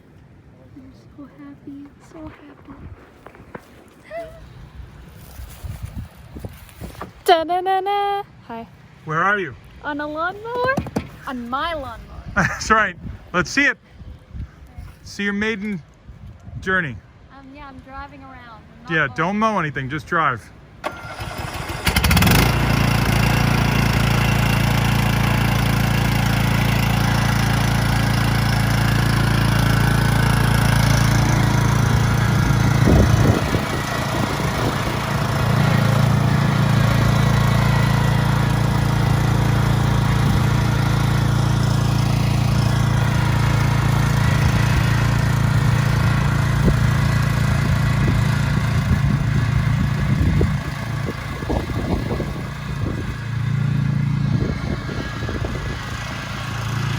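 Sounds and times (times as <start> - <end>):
riding lawn mower engine: 18.7 - 56.9.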